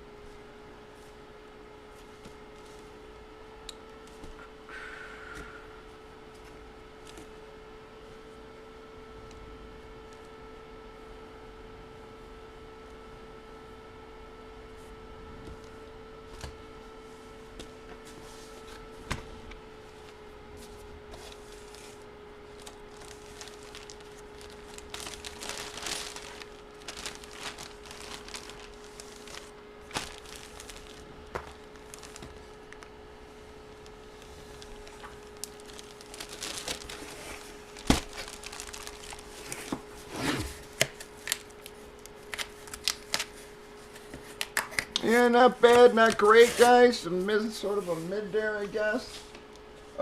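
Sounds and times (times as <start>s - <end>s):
faint steady hum: 0.0s - 50.0s
plastic packaging crinkling: 21.2s - 32.9s, 33.6s - 39.8s, 40.6s - 43.4s.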